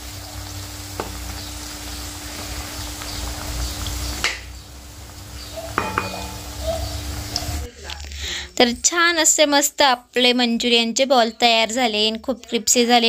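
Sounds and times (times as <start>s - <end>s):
food deep-frying in hot oil: 0.0s - 8.4s.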